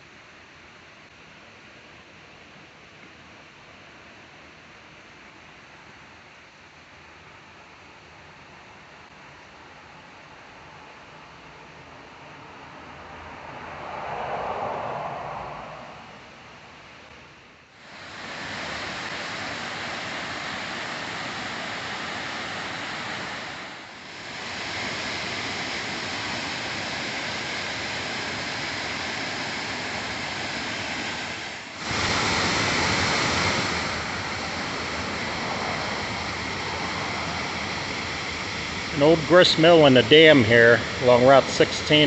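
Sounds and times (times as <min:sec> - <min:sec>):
waterfall rushing: 0:17.8 - 0:42.0.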